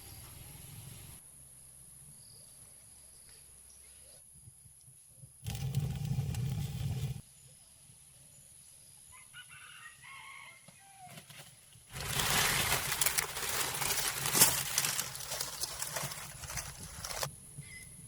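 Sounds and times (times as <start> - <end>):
rough crackly rustling: 11.2 - 17.3.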